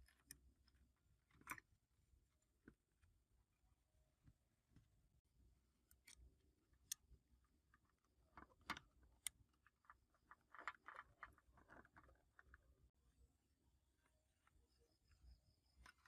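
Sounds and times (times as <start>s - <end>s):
small parts clicking and tapping: 0.0s - 1.7s, 5.8s - 12.8s.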